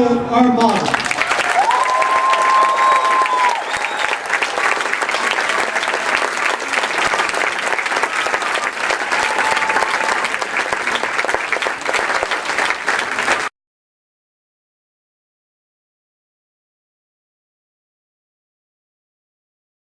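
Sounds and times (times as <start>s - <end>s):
crowd applauding: 0.6s - 13.5s.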